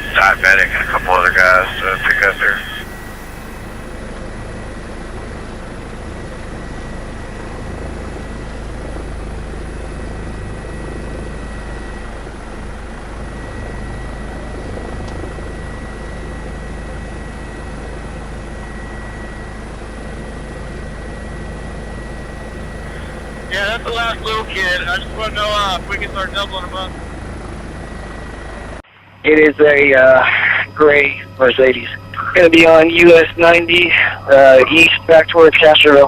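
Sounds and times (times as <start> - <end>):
faint high whine: 0.0 - 36.0
helicopter rotor and engine drone: 0.0 - 36.0.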